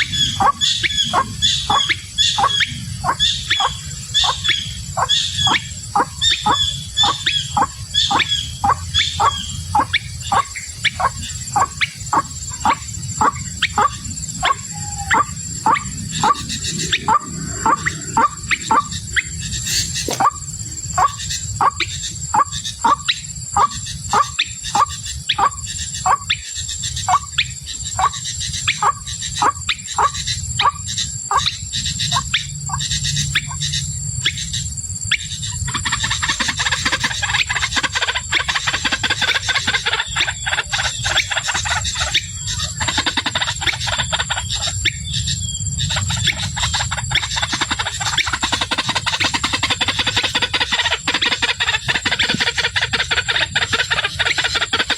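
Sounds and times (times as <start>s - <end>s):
waterhen calling: 0.0s - 26.4s, 28.0s - 33.6s, 45.9s - 54.9s.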